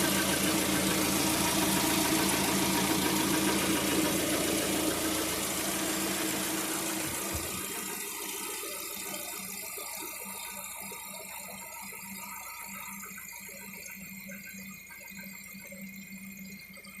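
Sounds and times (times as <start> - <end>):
light rattling engine knock: 0.0 - 9.2
car engine humming: 0.0 - 9.3.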